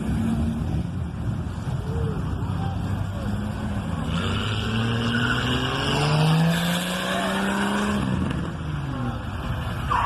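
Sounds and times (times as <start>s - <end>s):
car engine accelerating: 3.2s - 8.6s.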